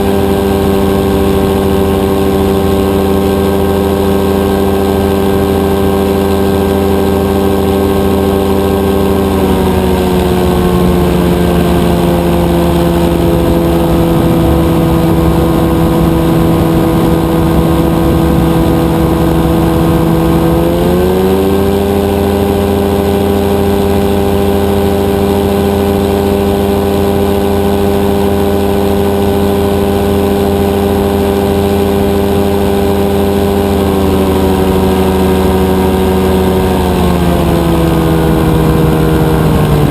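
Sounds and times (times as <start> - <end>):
two-stroke engine running: 0.0 - 39.9.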